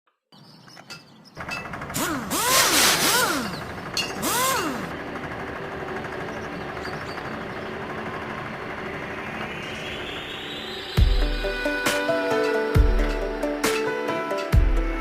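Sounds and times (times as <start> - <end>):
dirt bike engine revving and idling: 1.4 - 12.0.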